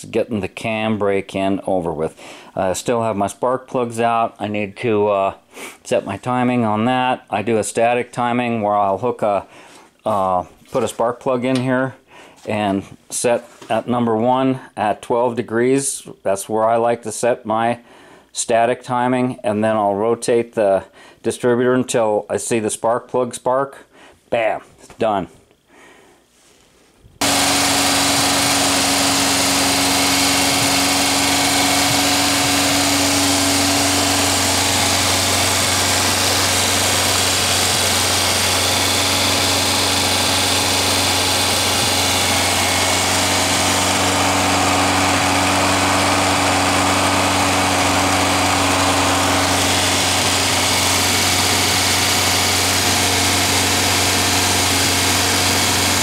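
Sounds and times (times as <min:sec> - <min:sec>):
car engine running steadily: 0:27.2 - 0:56.0.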